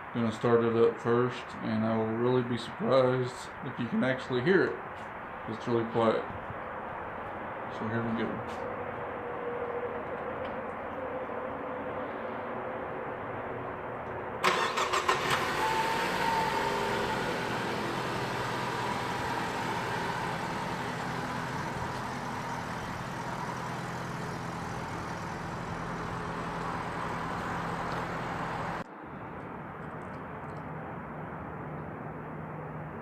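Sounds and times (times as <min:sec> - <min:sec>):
car engine cranking and idling: 0:14.4 - 0:28.8.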